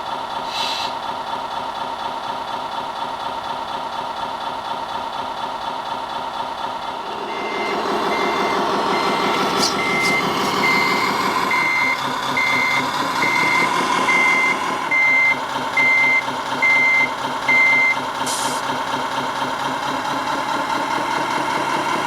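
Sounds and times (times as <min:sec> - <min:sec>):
simulated truck engine running: 0:00.0 - 0:22.0
short hiss: 0:00.5 - 0:01.0
reversing beeper: 0:07.0 - 0:18.0.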